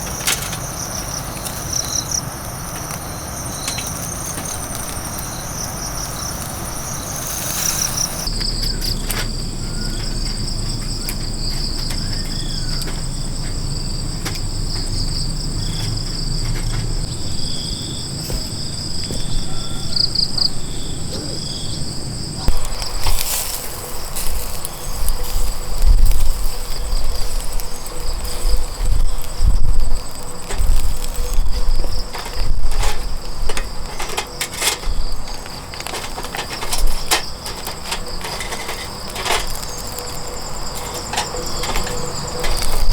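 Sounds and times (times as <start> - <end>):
insects chirping: 0.0 - 42.9
knocks and rustling: 6.1 - 17.2, 18.0 - 19.5, 22.4 - 42.9.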